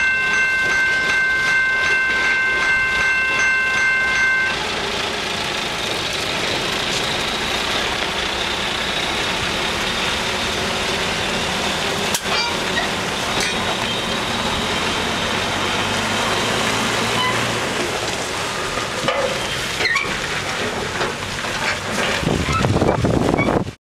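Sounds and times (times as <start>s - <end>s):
train rolling rumble: 0.0s - 23.8s
sharp metal clanks: 12.1s - 13.8s.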